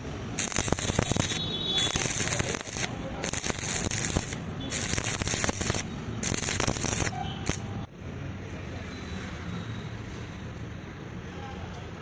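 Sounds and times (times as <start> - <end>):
welding arc crackling: 0.3 - 7.9.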